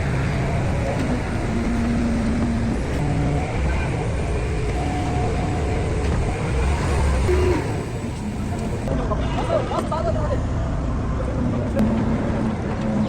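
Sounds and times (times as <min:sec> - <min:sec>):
low mechanical rumble: 0:00.0 - 0:09.0
faint voices: 0:00.0 - 0:10.7.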